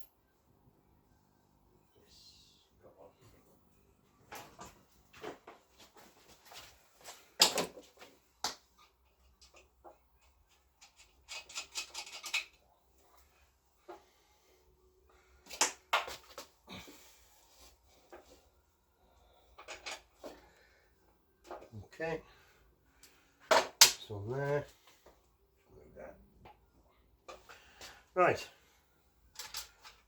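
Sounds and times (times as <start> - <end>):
small parts clicking and rattling: 8.8 - 12.6, 19.6 - 20.3, 29.3 - 30.0.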